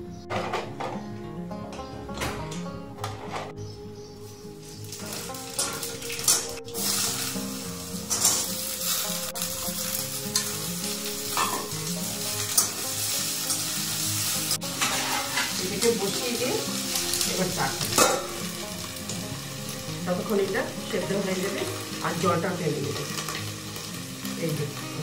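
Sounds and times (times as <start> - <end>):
wooden spatula scraping wok: 4.6 - 19.3
squash sizzling in oil: 4.6 - 25.0.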